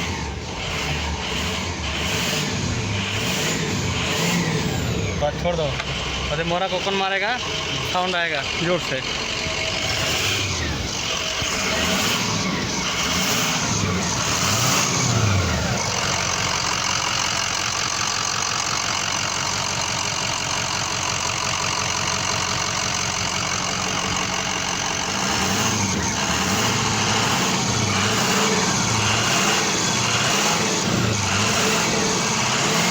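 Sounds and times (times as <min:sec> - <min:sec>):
pickup truck engine running: 0:00.0 - 0:32.9.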